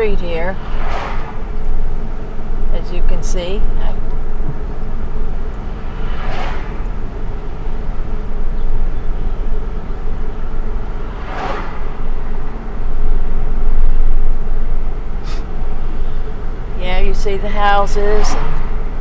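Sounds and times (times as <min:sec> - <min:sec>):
road and tyre noise: 0:00.0 - 0:19.0
brief whoosh: 0:00.4 - 0:01.7, 0:05.7 - 0:07.2, 0:11.1 - 0:12.2.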